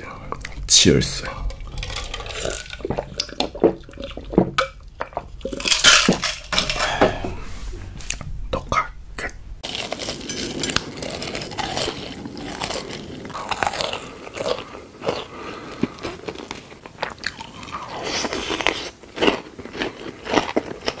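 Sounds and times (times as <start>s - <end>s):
crunchy bites and chewing: 9.6s - 21.0s.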